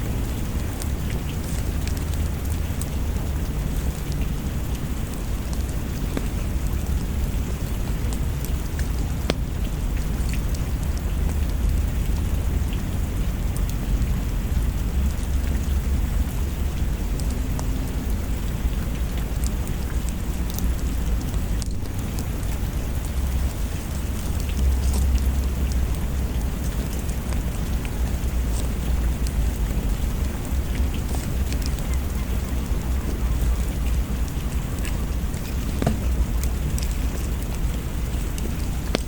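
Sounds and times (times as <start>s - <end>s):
steady rain: 0.0s - 39.0s.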